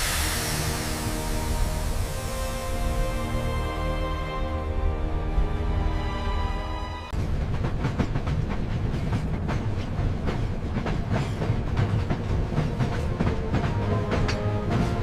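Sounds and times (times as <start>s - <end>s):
held musical chord: 0.0s - 7.2s
train rumbling on rails: 0.0s - 15.0s.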